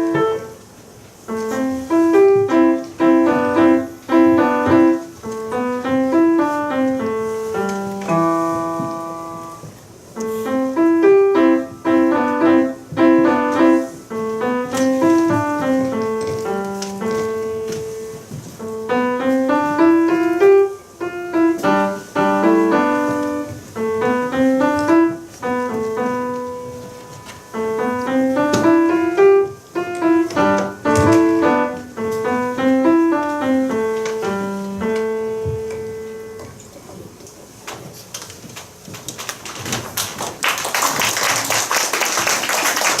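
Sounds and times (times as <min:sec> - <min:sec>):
solo piano melody: 0:00.0 - 0:37.6
applause: 0:39.2 - 0:43.0.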